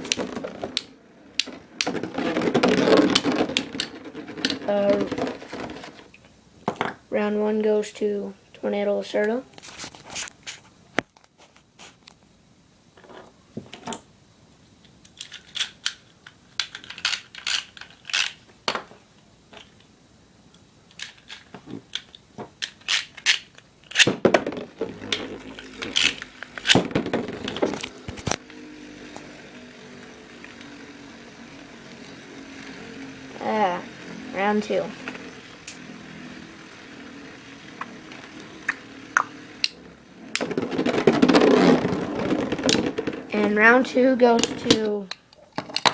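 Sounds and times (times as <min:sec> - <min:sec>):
plastic spinning tops clicking: 0:00.0 - 0:06.1, 0:15.0 - 0:18.4, 0:20.9 - 0:45.9.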